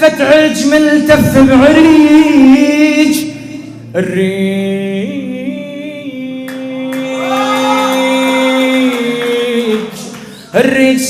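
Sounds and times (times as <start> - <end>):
man singing a long note: 0.0 - 10.0
steady held tones: 1.1 - 4.5.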